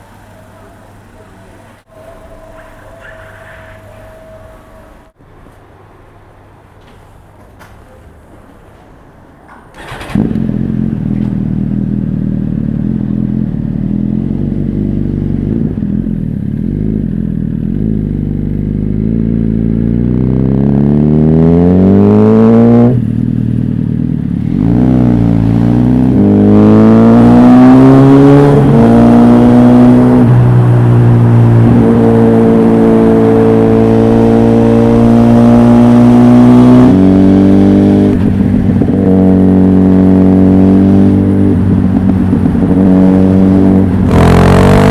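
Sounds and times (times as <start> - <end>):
motorcycle engine revving: 9.8 - 44.9.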